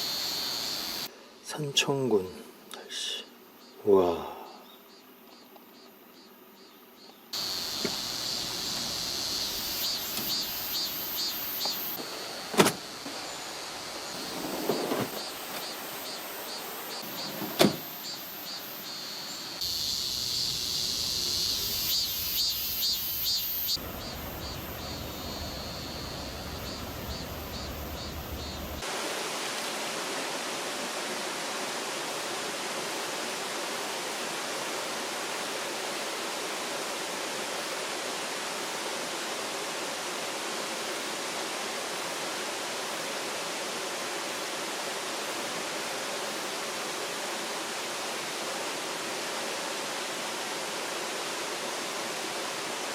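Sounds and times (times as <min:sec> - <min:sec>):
high pulsing insect buzz: 0:00.0 - 0:01.1, 0:03.3 - 0:28.8
mountain stream rushing: 0:00.0 - 0:01.1, 0:07.4 - 0:18.0, 0:23.8 - 0:52.9.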